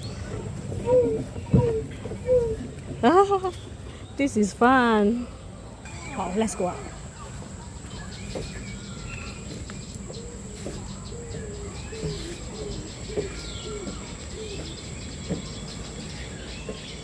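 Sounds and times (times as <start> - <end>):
birds cooing: 0.0 - 4.1, 5.2 - 17.0
bird chirps: 5.8 - 17.0.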